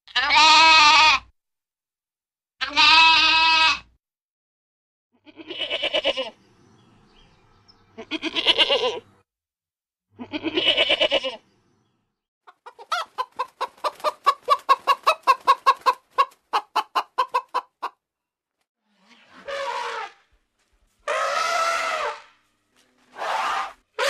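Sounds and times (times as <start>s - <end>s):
goat bleating: 0.1s - 1.3s, 2.6s - 3.9s, 5.2s - 6.4s, 7.9s - 9.1s, 10.2s - 11.4s
chicken clucking: 12.4s - 18.0s.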